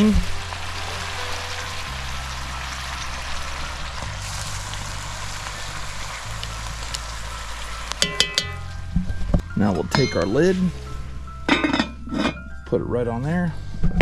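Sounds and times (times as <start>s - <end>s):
food sizzling in a pot: 0.0s - 9.3s
wood fire: 0.0s - 10.8s
metal tongs clinking on pot: 8.0s - 8.7s, 9.8s - 10.5s.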